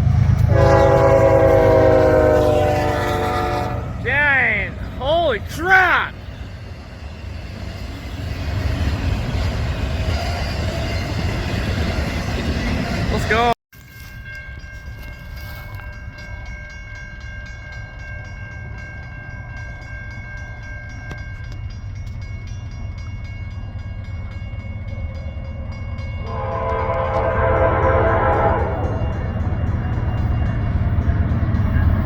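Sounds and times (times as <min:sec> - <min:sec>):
train rumbling: 0:00.0 - 0:32.0
locomotive air horn: 0:00.4 - 0:04.1, 0:26.2 - 0:29.0.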